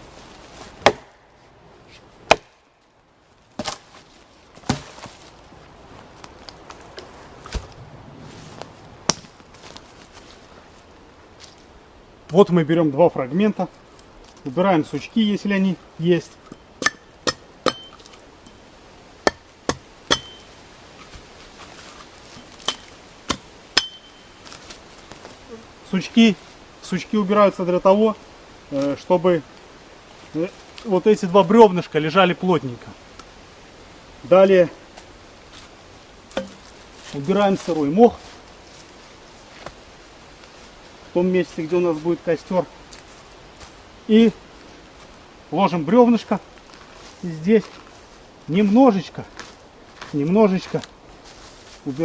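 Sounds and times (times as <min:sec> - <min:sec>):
axe chopping tree trunk: 0:00.8 - 0:01.2, 0:02.2 - 0:02.6, 0:03.6 - 0:03.8, 0:04.6 - 0:05.2, 0:09.1 - 0:09.3, 0:16.8 - 0:18.2, 0:19.2 - 0:20.5, 0:22.4 - 0:24.1, 0:36.3 - 0:36.7
light knocks of axe: 0:36.3 - 0:36.7.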